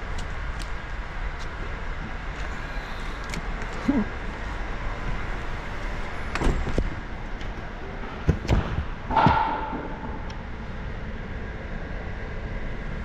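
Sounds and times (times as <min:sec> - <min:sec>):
steady background hum: 0:00.0 - 0:13.0
knocks and thuds: 0:08.2 - 0:10.3
metallic clank ringing: 0:09.1 - 0:10.4.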